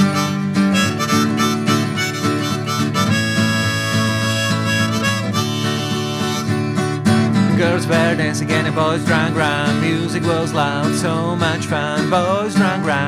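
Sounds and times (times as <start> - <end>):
harmonica in instrumental music: 0.0 - 7.6.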